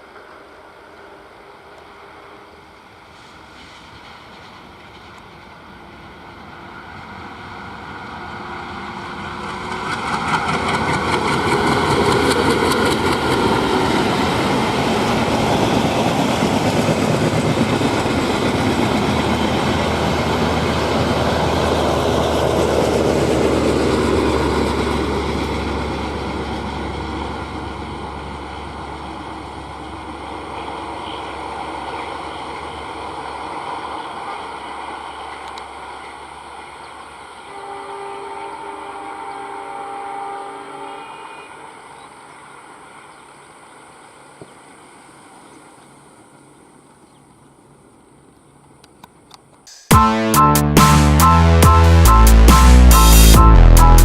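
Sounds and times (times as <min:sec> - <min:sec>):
train wheels rumbling and clattering: 0:02.6 - 0:36.2.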